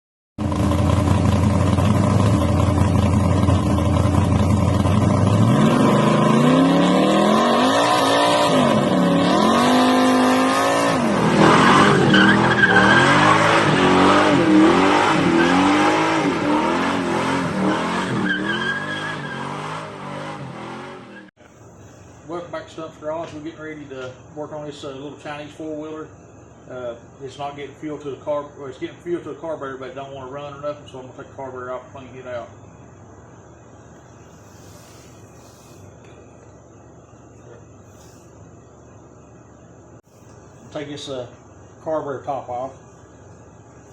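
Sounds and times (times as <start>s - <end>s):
vehicle engine revving: 0.4s - 21.3s.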